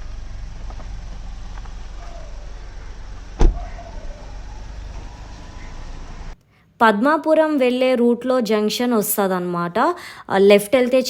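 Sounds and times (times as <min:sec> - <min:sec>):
vehicle rumble: 0:00.0 - 0:06.4
sharp knock: 0:03.4 - 0:03.7.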